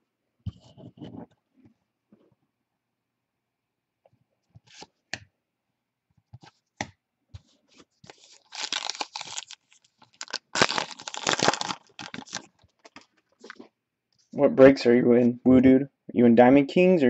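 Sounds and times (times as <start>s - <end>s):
wrapper crinkling and tearing: 8.1s - 13.6s.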